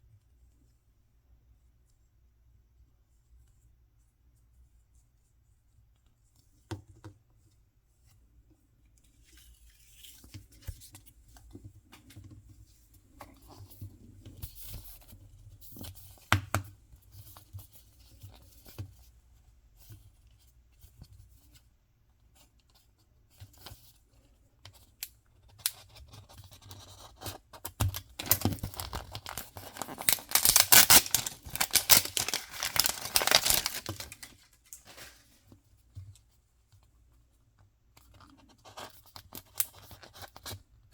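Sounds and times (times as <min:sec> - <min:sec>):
packaging clicks and rustles: 0:27.8 - 0:35.3
packaging ripping and crinkling: 0:27.9 - 0:35.3.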